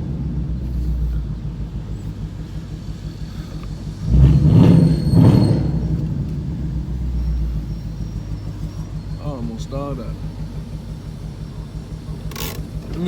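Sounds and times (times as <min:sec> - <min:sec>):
engine deep rumble: 0:00.0 - 0:13.0
engine surging loudly: 0:00.0 - 0:13.0.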